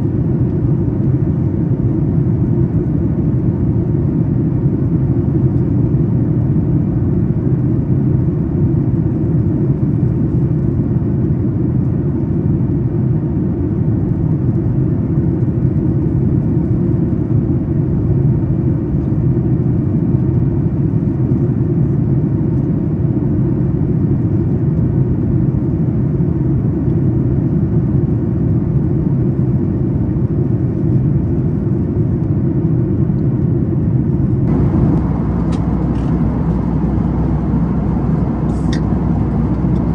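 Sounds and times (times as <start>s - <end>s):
airplane cabin rumble: 33.8s - 39.9s
faint steady hum: 34.5s - 39.9s.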